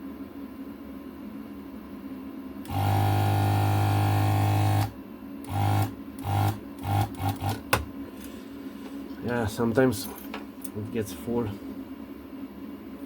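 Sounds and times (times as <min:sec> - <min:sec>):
desoldering vacuum pump buzzing: 0:02.6 - 0:08.4.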